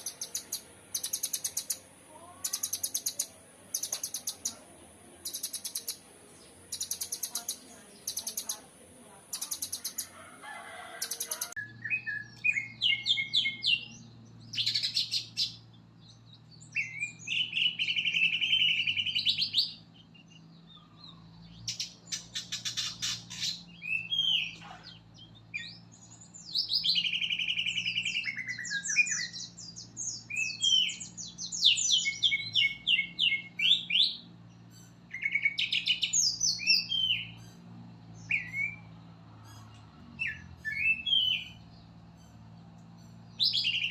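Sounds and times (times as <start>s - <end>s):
bird singing whistles and trills: 11.0s - 24.6s, 25.2s - 34.3s, 35.1s - 37.5s, 38.2s - 38.9s, 39.6s - 41.7s, 43.3s - 43.9s.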